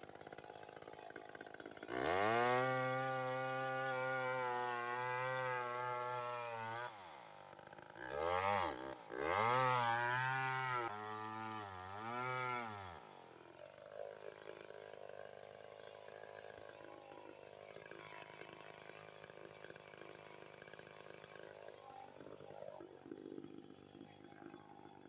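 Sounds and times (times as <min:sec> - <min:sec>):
chainsaw engine revving: 0:00.0 - 0:25.0.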